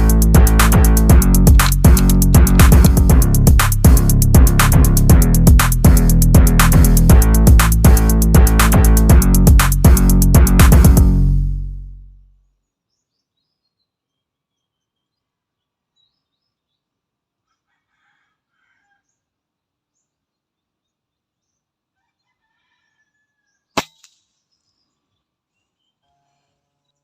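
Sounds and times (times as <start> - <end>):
air rifle shot crack: 23.8 - 24.2
pellet hitting target: 23.8 - 24.3.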